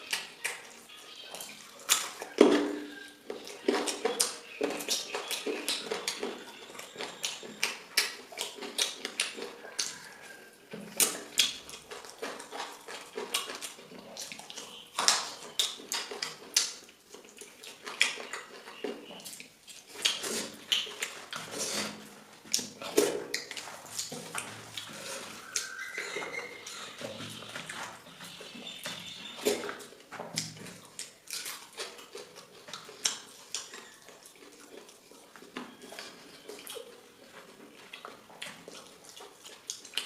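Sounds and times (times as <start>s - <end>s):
person chewing and lip smacking: 0.0s - 40.0s.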